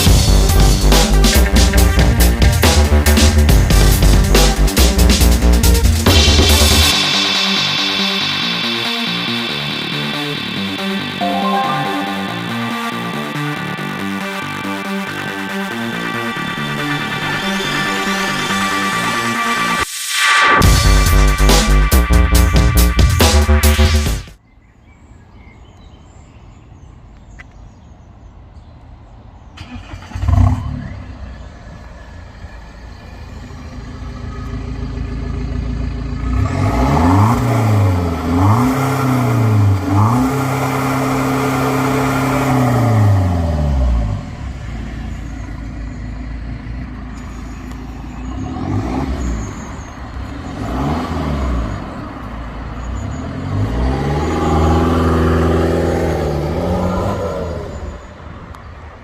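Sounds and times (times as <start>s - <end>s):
diesel engine revving: 29.6s - 58.6s.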